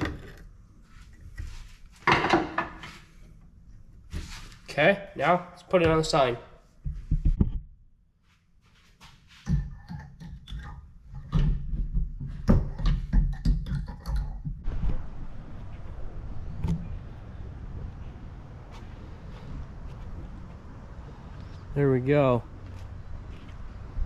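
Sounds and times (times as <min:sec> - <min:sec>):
steady background hiss: 0:14.7 - 0:24.0.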